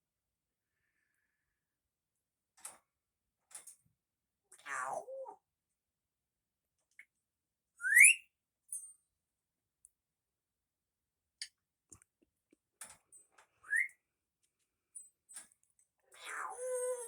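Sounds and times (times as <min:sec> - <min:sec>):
parrot rising whistles: 0:07.8 - 0:08.2, 0:13.7 - 0:13.9.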